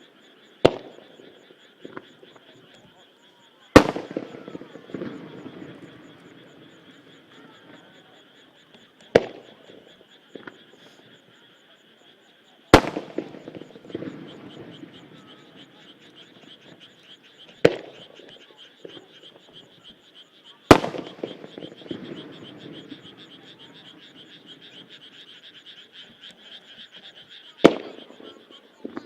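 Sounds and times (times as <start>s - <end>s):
frogs chorus: 0.0s - 29.0s
firework shells booming: 0.6s - 2.3s, 3.7s - 7.8s, 9.1s - 10.6s, 12.7s - 16.9s, 17.5s - 19.4s, 20.7s - 25.0s, 27.6s - 29.0s.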